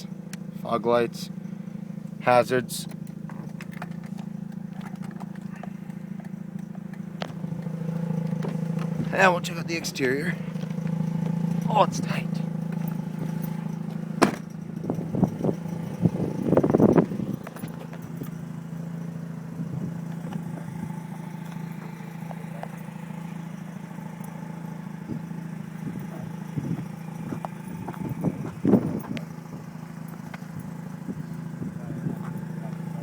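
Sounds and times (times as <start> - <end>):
rotary engine idling: 0.0 - 33.0
knocks and thumps: 14.2 - 14.5.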